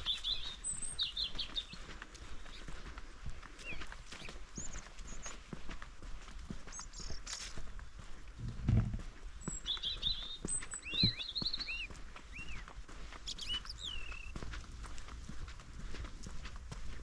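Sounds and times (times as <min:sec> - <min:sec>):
footsteps on forest floor: 0:00.0 - 0:17.0
small birds chirping: 0:00.0 - 0:17.0
heavy thuds: 0:08.4 - 0:09.1.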